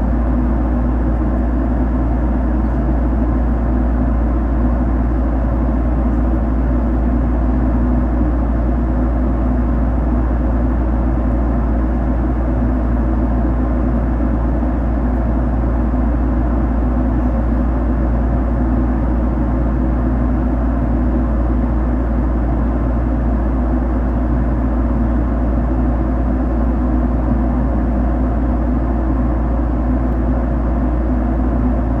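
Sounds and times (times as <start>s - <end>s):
airliner cabin engine rumble: 0.0s - 32.0s.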